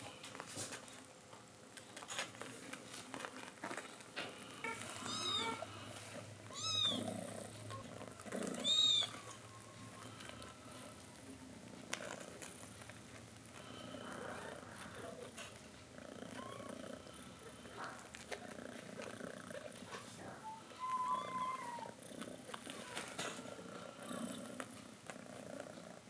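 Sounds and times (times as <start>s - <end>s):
cat purring: 0.0s - 26.0s
cat mewing: 20.4s - 22.0s.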